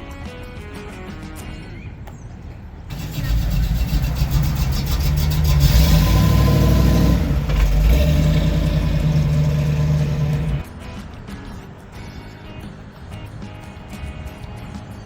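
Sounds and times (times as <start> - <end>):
car engine rumbling: 2.8 - 10.7.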